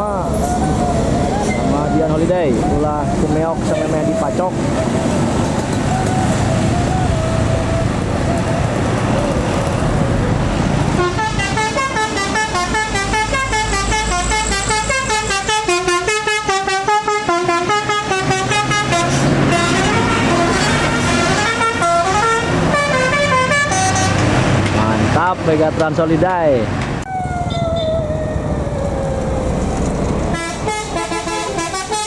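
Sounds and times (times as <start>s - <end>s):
bus multi-tone horn melody: 0.0s - 9.8s, 10.9s - 24.6s, 30.1s - 32.0s
engine running: 0.0s - 11.3s.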